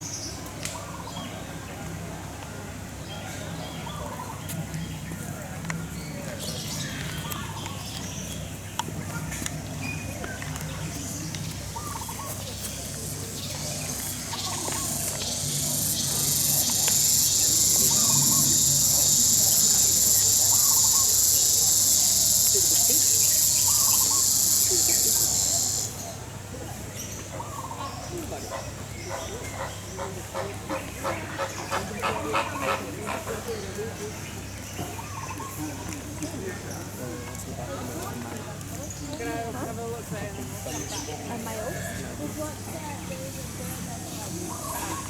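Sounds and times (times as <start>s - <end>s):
high-pitched insect drone: 13.0s - 26.0s
flamingos calling: 13.3s - 26.0s, 28.4s - 33.5s
flamingo calls: 28.5s - 33.5s.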